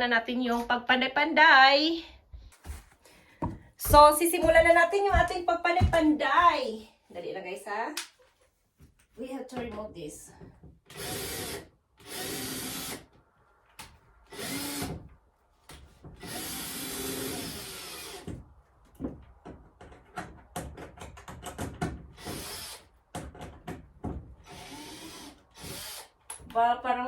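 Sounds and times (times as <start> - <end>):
sharp knocks on wood: 3.4 - 6.2
power drill running: 10.9 - 13.1, 14.3 - 15.0, 16.2 - 18.3, 22.2 - 22.8, 24.4 - 26.1.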